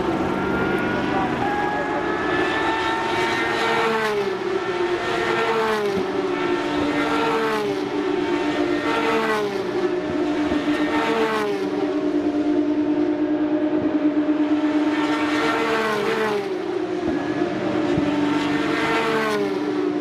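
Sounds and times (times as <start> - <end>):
race cars passing at speed: 0.0 - 20.0.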